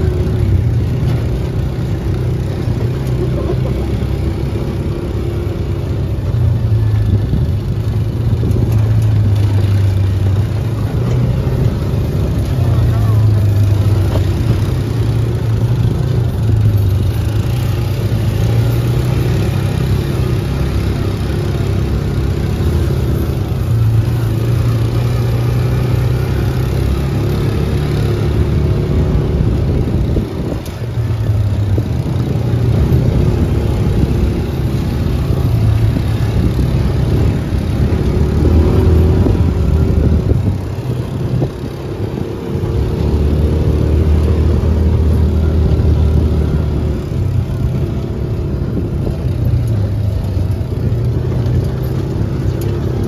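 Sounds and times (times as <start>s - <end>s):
utility vehicle engine running: 0.0s - 53.0s.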